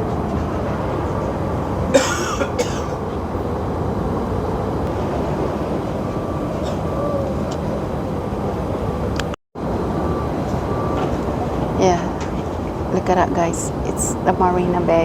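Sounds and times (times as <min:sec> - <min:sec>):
distant city rumble: 0:00.0 - 0:15.0
wind: 0:00.0 - 0:15.0.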